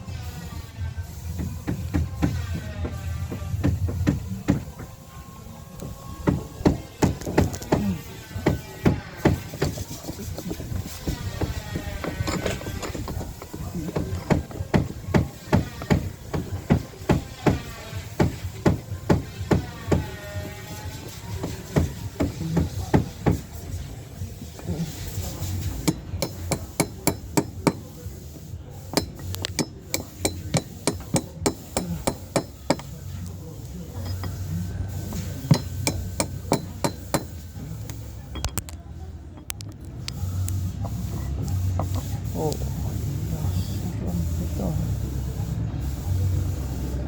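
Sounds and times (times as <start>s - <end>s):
hammer striking metal caulking tool: 6.2s - 23.5s, 25.6s - 28.0s, 28.9s - 33.0s, 35.1s - 38.7s.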